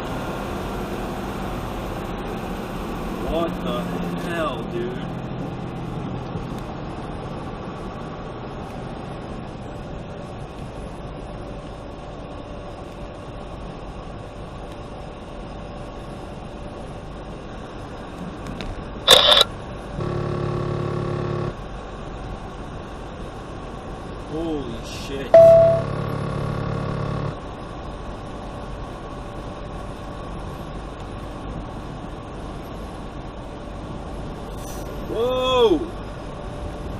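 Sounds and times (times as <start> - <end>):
steady pitched tone: 25.3 - 27.4.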